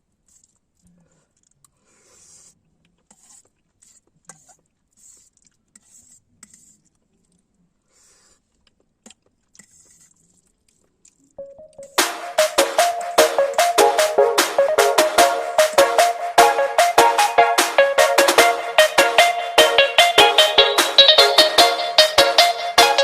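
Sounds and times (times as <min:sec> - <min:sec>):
small clicks and scrapes: 0:00.0 - 0:11.4
quiet chewing: 0:02.4 - 0:11.4.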